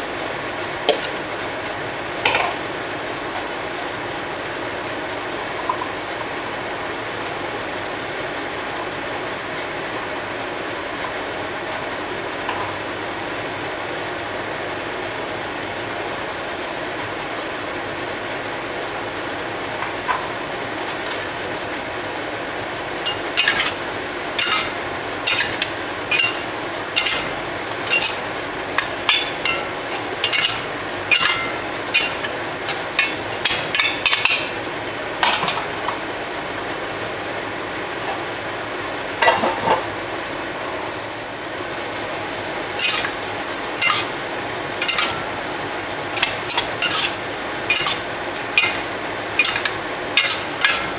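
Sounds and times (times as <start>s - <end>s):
metal utensil scraping a pan: 23.1s - 23.8s, 24.4s - 34.6s, 42.8s - 44.2s, 44.8s - 45.3s, 46.2s - 50.9s.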